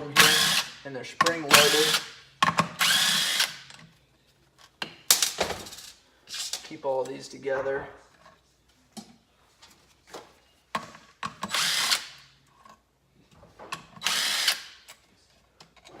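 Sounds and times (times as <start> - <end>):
power drill spinning: 0.2 - 0.8, 1.5 - 2.1, 2.8 - 3.7, 11.5 - 12.2, 14.0 - 14.9.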